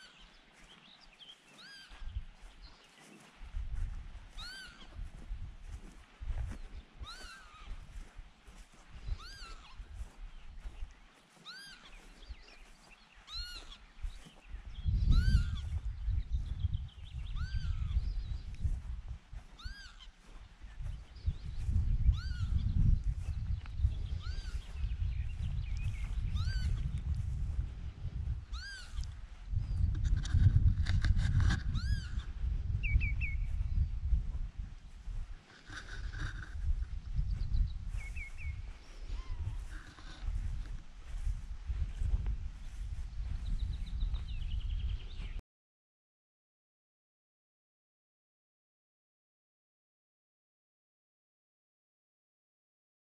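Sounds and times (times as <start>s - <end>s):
wind rumble on microphone: 0.0s - 45.4s
bird alarm calls: 1.5s - 2.0s, 4.4s - 4.9s, 11.4s - 12.1s, 13.2s - 13.8s, 19.6s - 20.1s, 28.5s - 29.0s, 31.8s - 33.4s.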